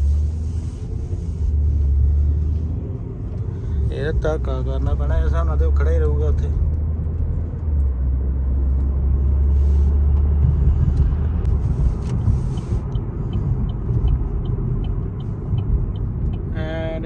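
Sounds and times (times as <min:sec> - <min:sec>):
car engine and road rumble: 0:00.0 - 0:17.0
light regular ticking: 0:11.4 - 0:17.0.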